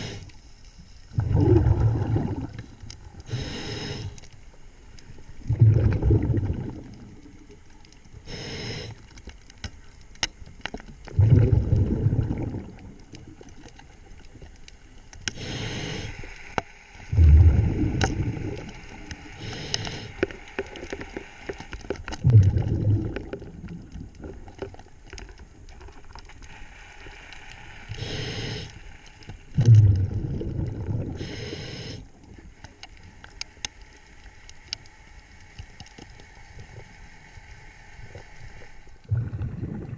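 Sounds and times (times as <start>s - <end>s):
regulator inhale hiss: 0.0s - 1.0s, 3.1s - 4.4s, 8.2s - 9.2s, 15.2s - 21.7s, 26.5s - 29.5s, 31.1s - 33.2s
exhaled bubbles gushing: 1.1s - 2.8s, 5.4s - 7.4s, 11.1s - 13.4s, 17.1s - 19.0s, 22.2s - 24.6s, 29.6s - 31.3s, 39.0s - 39.9s
sharp clicks underwater: 1.2s - 26.5s, 27.3s - 37.0s.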